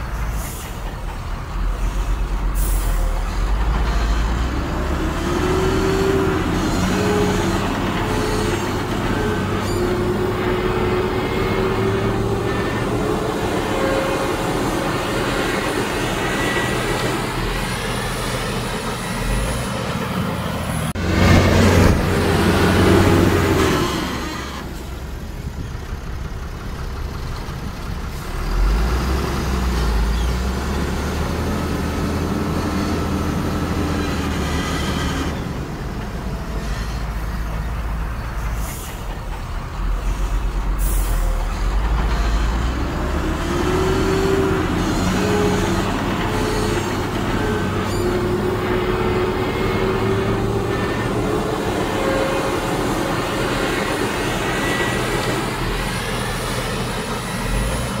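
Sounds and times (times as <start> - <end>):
heavy diesel machinery running: 0.0 - 58.0.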